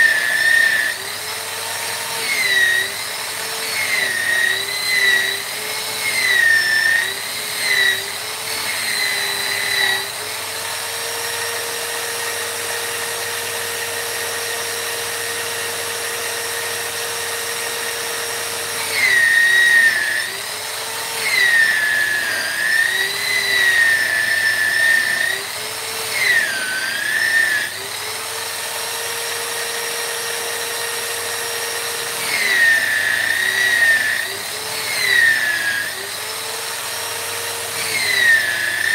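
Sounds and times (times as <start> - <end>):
rotary tool grinding wood: 0.0 - 38.9.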